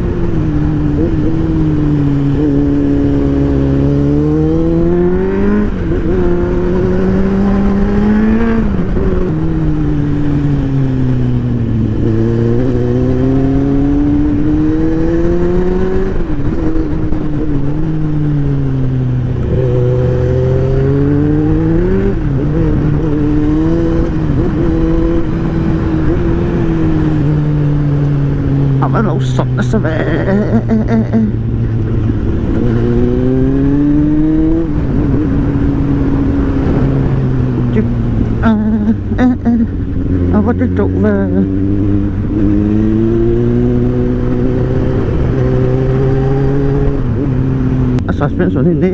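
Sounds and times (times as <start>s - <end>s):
motorcycle engine accelerating: 0.0s - 48.9s
wind rushing: 31.4s - 39.1s.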